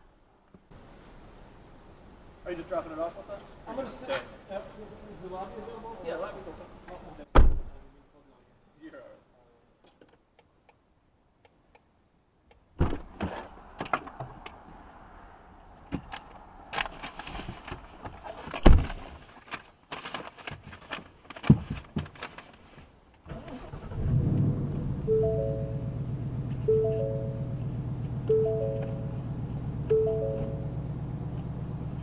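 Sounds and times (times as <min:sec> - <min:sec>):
low steady drone: 0:24.0 - 0:32.0.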